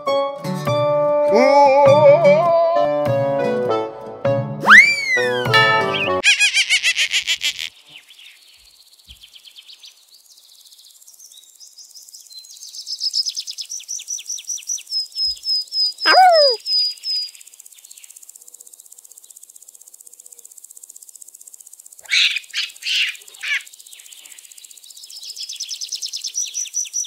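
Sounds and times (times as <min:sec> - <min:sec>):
birds singing: 0:07.2 - 0:18.2, 0:22.0 - 0:27.0.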